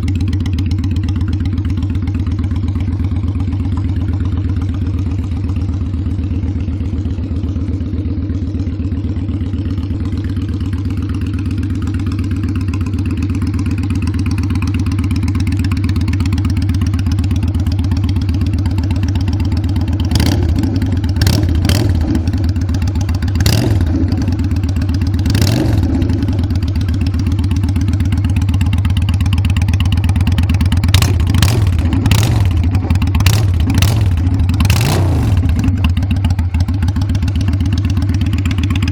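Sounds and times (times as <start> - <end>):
motorcycle engine idling: 0.0 - 38.9
engine revving: 20.1 - 22.3, 23.4 - 24.4, 25.2 - 26.3, 30.9 - 35.8.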